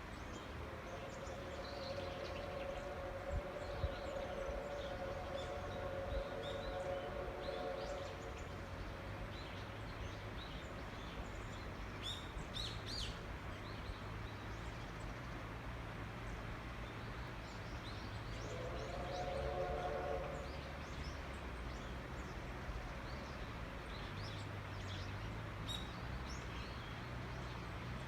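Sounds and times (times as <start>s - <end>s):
steady low hum: 0.1s - 9.3s.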